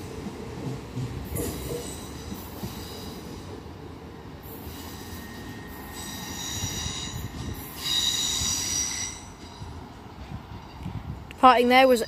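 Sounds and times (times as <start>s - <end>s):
train low rumble: 0.0s - 12.0s
high-pitched wheel squeal: 4.6s - 9.6s.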